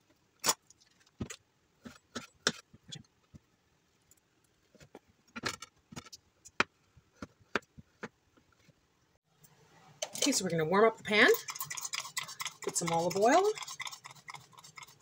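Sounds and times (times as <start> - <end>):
kitchen utensils clicking and knocking: 10.0 - 15.0.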